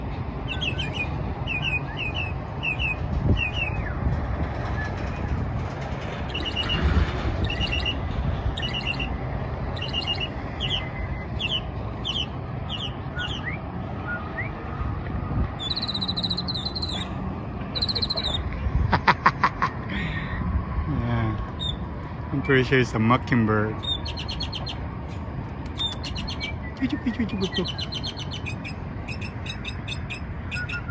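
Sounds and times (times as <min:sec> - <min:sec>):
low background hum: 0:00.0 - 0:30.9
bird singing: 0:00.4 - 0:03.9, 0:06.3 - 0:08.0, 0:08.6 - 0:09.2, 0:09.8 - 0:14.6, 0:15.6 - 0:17.2, 0:17.8 - 0:18.5, 0:21.6 - 0:22.9, 0:23.8 - 0:24.8, 0:25.7 - 0:30.9
bird clicking rattle: 0:23.9 - 0:26.5.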